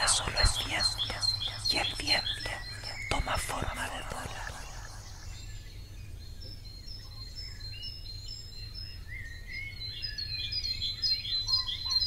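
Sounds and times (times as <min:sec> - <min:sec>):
steady low hum: 0:00.0 - 0:07.0
birds chirping: 0:00.0 - 0:12.0.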